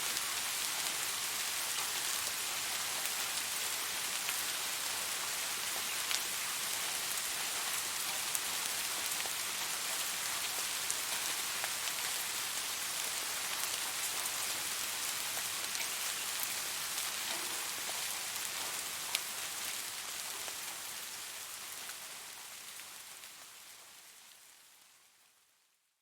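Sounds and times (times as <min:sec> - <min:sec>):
rain falling on a surface: 0:00.0 - 0:26.0.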